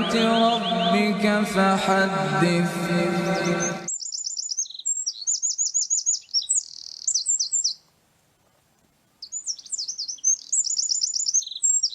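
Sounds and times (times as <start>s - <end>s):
small songbird singing: 0.0s - 1.4s, 3.1s - 7.9s, 9.1s - 11.9s.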